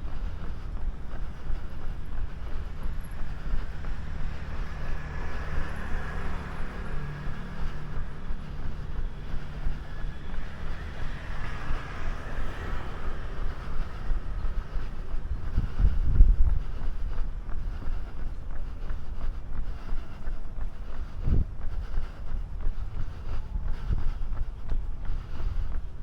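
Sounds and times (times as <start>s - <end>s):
passing vehicle rumble: 0.0s - 26.0s
wind on microphone: 10.8s - 17.8s, 21.1s - 26.0s.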